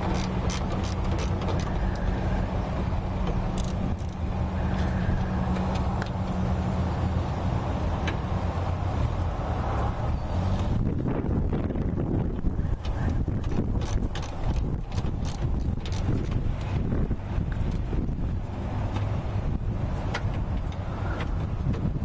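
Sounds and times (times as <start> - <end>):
socket wrench ratchet clicking: 0.0 - 2.1, 3.5 - 4.2, 13.0 - 16.7
steady low hum: 0.0 - 22.0.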